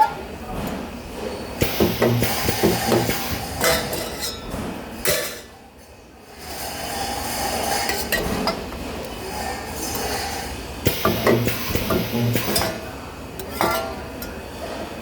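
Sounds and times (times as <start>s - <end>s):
sharp metallic knocks: 1.6s - 4.0s, 10.9s - 12.8s.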